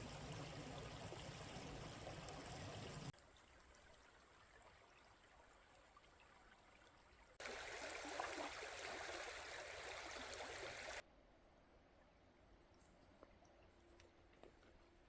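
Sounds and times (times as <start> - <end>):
stream water rushing: 7.4 - 11.0.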